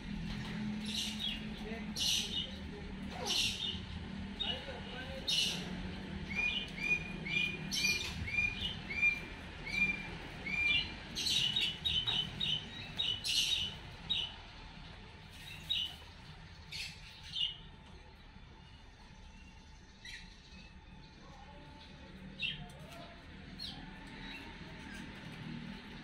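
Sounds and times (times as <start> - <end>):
bird chirping: 5.2 - 14.4.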